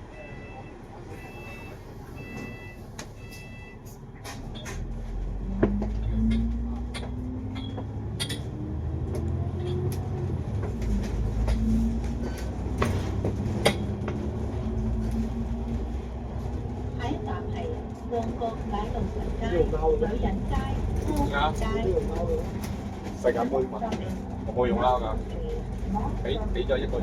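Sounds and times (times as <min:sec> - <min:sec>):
bus engine rumble: 0:00.0 - 0:27.0.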